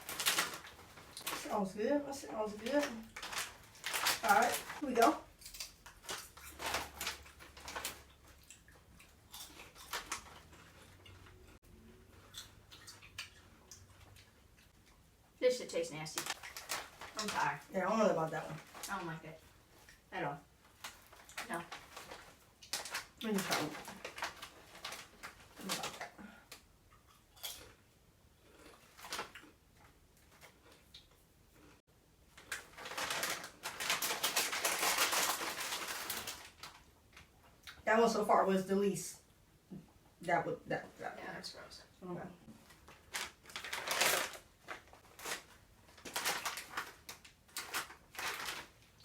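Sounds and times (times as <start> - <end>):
potato chips crunching: 2.5 - 11.3, 32.4 - 37.8, 42.6 - 49.0
chewing potato chips: 2.7 - 15.0, 20.7 - 31.8, 42.6 - 49.0.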